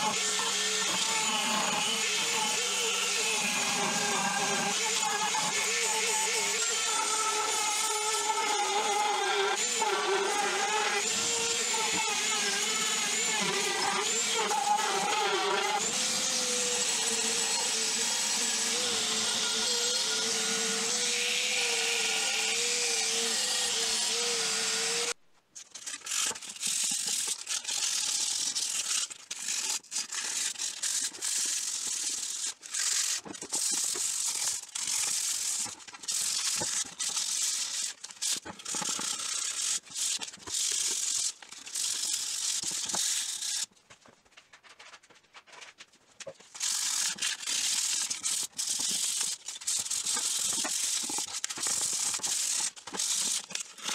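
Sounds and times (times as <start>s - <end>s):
motor-driven tool running: 0.0s - 25.2s, 46.5s - 53.9s.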